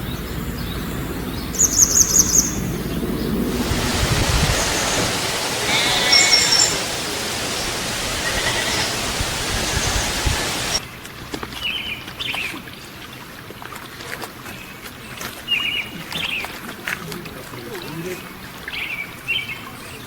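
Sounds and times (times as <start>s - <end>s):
songbird chirping: 0.6s - 11.0s
rushing stream noise: 3.2s - 11.3s.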